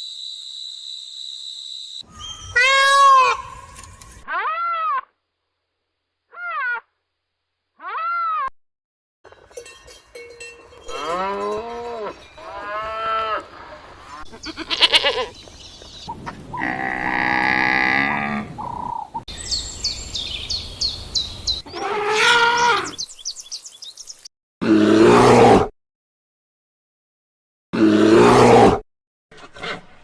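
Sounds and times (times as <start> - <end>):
cow mooing: 10.9 - 13.4, 16.6 - 18.6
animal bleating: 14.2 - 15.4, 16.6 - 18.6, 21.6 - 23.0.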